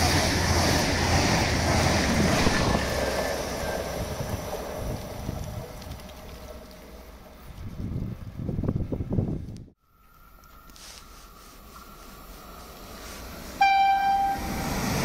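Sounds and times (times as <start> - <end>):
train passing at speed: 0.0 - 7.9, 10.9 - 15.0.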